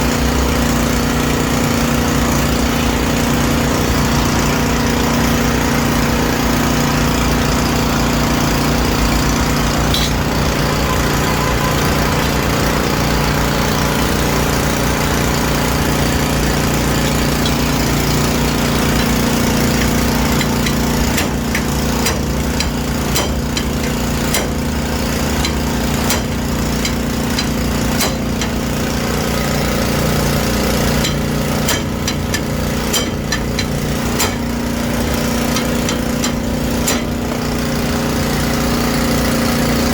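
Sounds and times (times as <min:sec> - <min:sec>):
motor drone: 0:00.0 - 0:31.9
hammer tapping sheet metal: 0:15.7 - 0:28.8, 0:31.0 - 0:37.2.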